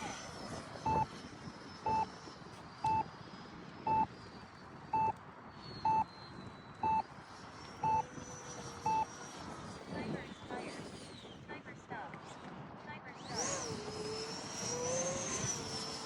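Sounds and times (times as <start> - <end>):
electronic beeper beeping: 0.9 - 1.1, 1.9 - 2.1, 3.9 - 4.1, 6.8 - 7.0, 7.8 - 8.0.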